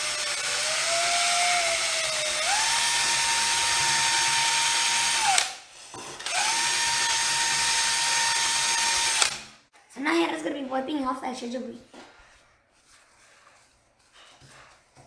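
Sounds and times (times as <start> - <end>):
power drill running: 0.0 - 5.6, 6.2 - 9.6.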